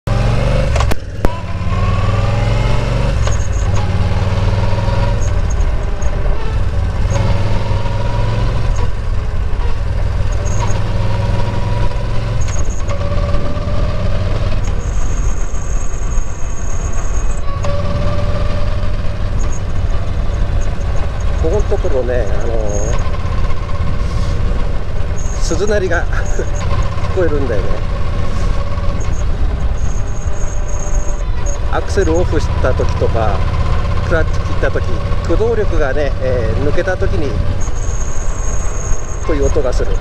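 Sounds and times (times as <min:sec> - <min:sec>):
motorcycle engine running: 0:00.1 - 0:40.0
high bell-like drivetrain ringing: 0:28.8 - 0:40.0.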